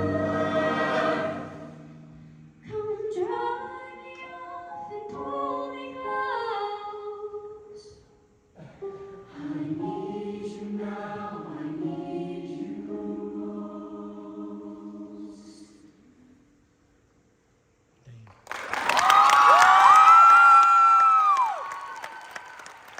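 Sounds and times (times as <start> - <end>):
choir singing a cappella chords: 0.0 - 7.9, 8.6 - 16.6.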